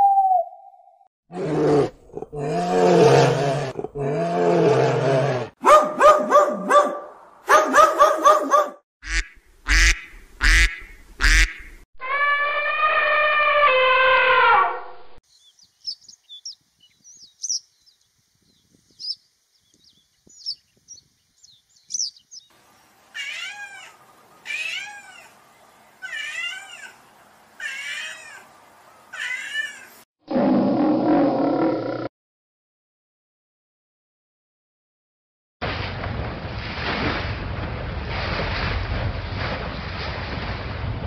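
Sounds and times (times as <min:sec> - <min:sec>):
lion roaring: 0:01.3 - 0:05.6, 0:30.3 - 0:32.1
elephant trumpeting: 0:11.2 - 0:14.9
cat meowing: 0:23.2 - 0:25.3, 0:26.0 - 0:26.9, 0:27.6 - 0:28.4, 0:29.2 - 0:29.9.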